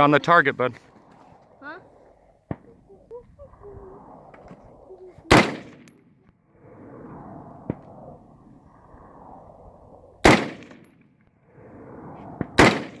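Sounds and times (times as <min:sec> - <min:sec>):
rifle shot with echo: 0:05.3 - 0:06.0, 0:10.2 - 0:10.9, 0:12.4 - 0:13.0.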